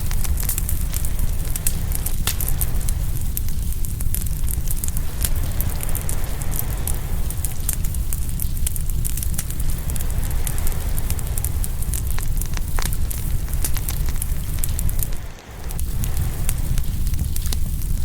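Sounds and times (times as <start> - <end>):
low rumble of fire: 0.0 - 18.0
wood fire crackling and popping: 0.0 - 18.0
ocean waves: 4.8 - 8.2, 9.5 - 12.5, 13.1 - 16.8.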